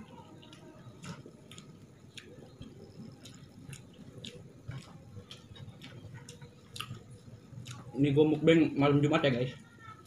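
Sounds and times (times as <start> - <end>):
person chewing food: 0.0 - 8.0.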